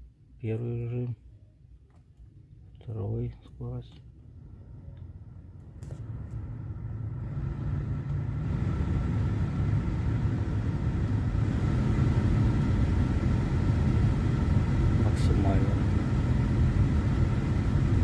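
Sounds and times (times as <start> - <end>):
faint steady whine: 0.0 - 18.0
heater blower fan running: 4.2 - 18.0.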